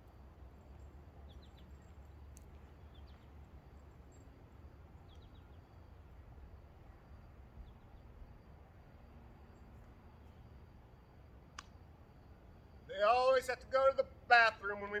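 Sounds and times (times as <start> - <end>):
faint bird chirps: 0.0 - 11.1.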